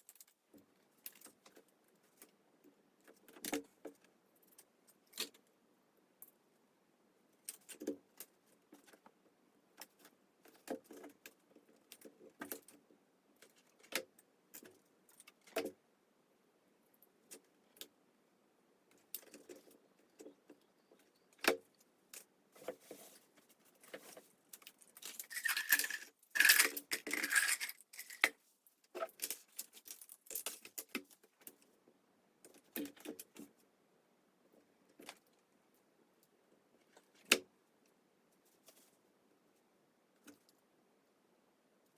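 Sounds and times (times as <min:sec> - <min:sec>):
scraping and crinkling: 0:22.5 - 0:31.2
craft materials clicking and clattering: 0:24.6 - 0:28.4.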